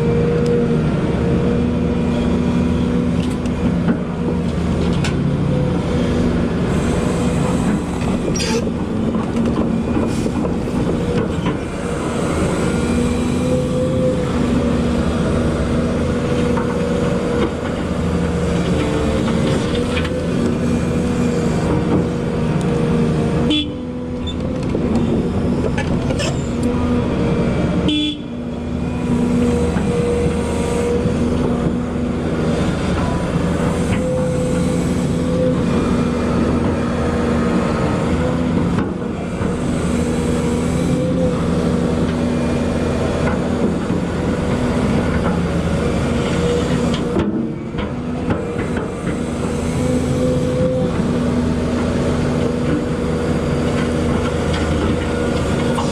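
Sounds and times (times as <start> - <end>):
excavator diesel engine: 0.0 - 55.9
hydraulic tonal whine: 6.5 - 9.1.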